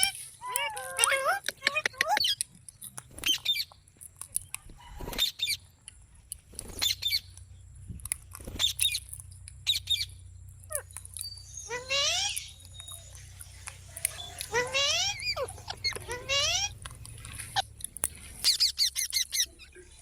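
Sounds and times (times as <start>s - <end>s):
parrot squawking: 0.0s - 2.4s, 10.7s - 19.8s.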